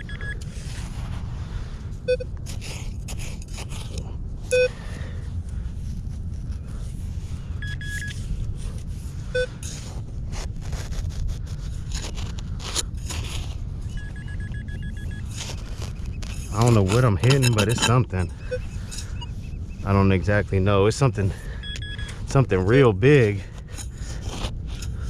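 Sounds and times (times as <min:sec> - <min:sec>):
metal detector beeps: 0:00.0 - 0:00.5, 0:02.1 - 0:02.3, 0:04.5 - 0:04.7, 0:07.6 - 0:08.2, 0:09.3 - 0:09.5, 0:13.8 - 0:20.1, 0:21.4 - 0:22.3
low rumble: 0:00.0 - 0:25.0
digging in sand: 0:02.1 - 0:05.0, 0:08.2 - 0:25.0.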